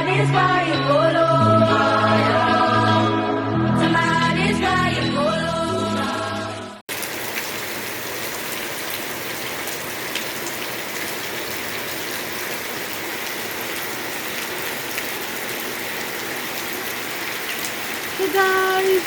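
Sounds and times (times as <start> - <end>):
steady rain falling: 6.9 - 19.0.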